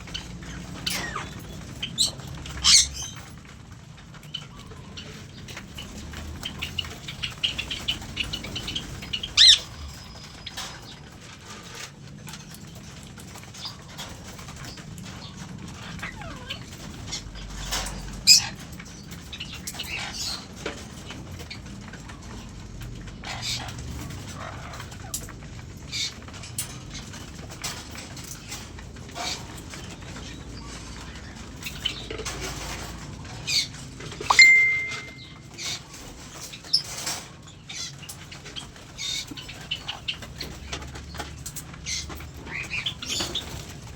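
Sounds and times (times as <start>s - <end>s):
quick high bird chirps: 34.3s - 35.3s.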